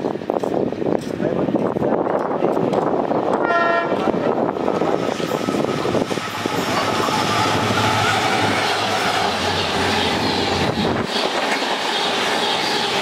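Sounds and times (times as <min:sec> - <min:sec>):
train wheels rumbling and rattling: 0:00.0 - 0:13.0
train horn blast: 0:03.4 - 0:04.1.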